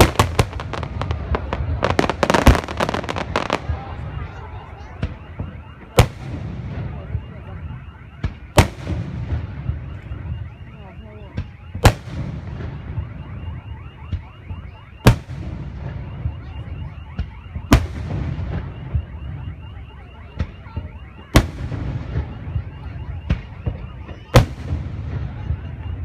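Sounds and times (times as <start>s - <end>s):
fireworks booming: 0.0s - 26.0s
fireworks pops: 11.3s - 25.8s.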